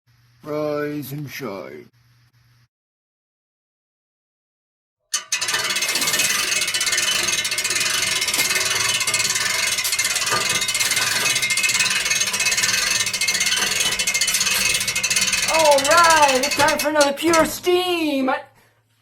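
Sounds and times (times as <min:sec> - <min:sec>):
rapid mechanical ratchet clicking: 0:05.2 - 0:17.8.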